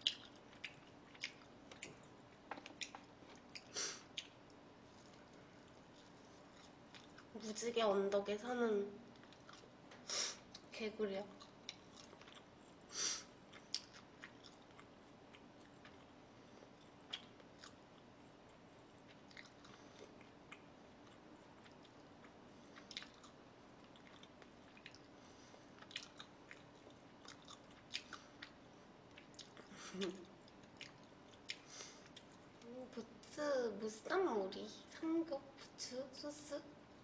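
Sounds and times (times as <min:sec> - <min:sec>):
chewing and biting food: 0:00.0 - 0:04.4, 0:09.2 - 0:09.7, 0:11.3 - 0:12.6, 0:13.4 - 0:29.7, 0:30.4 - 0:32.4.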